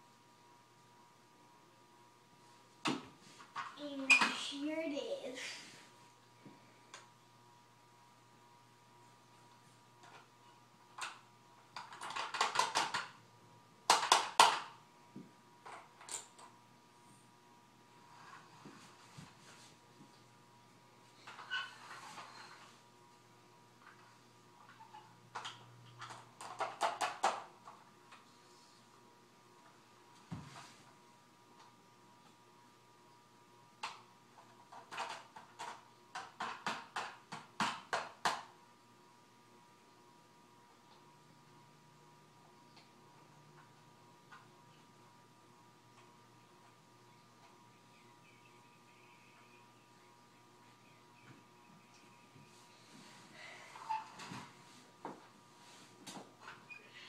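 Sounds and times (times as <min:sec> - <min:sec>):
plastic toy clicking and clattering: 0:11.0 - 0:13.2, 0:13.9 - 0:14.7, 0:25.3 - 0:27.5, 0:34.7 - 0:38.4.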